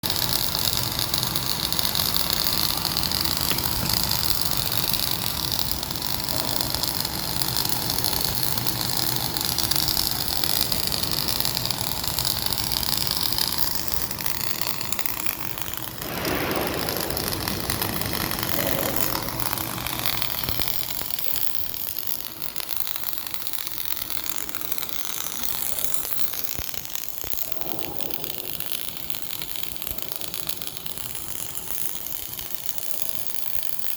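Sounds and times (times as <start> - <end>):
welding arc crackling and sizzling: 0.0 - 33.9.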